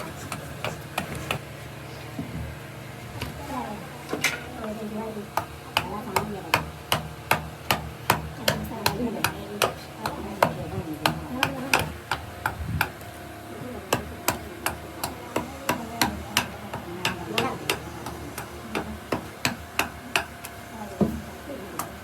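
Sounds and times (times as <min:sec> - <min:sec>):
hammer striking wood: 0:00.3 - 0:01.4, 0:05.3 - 0:13.1, 0:13.9 - 0:22.0.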